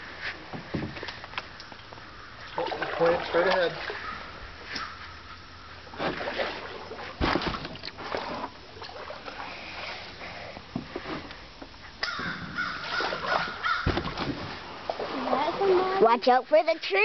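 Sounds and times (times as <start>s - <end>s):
water wash: 1.1s - 4.5s, 12.6s - 17.0s
bird calling: 3.6s - 5.8s, 12.0s - 14.0s
paddle knocking on hull: 12.1s - 15.1s.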